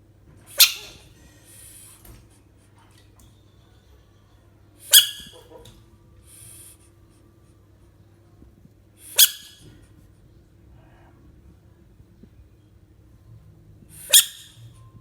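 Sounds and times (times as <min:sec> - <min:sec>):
sharp animal cries: 0:00.6 - 0:01.0, 0:04.9 - 0:05.5, 0:09.1 - 0:09.6, 0:14.0 - 0:14.6.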